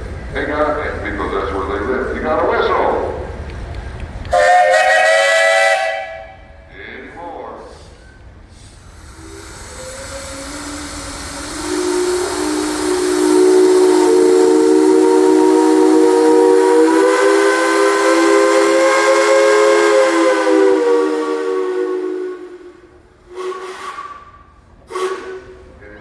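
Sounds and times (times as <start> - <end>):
steam whistle chord: 4.3 - 6.5, 9.1 - 25.6
steam hiss: 7.6 - 25.8.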